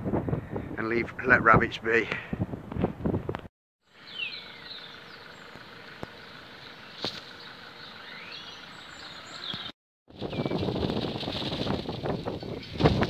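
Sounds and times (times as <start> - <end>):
birds calling: 3.9 - 10.7, 12.0 - 13.0.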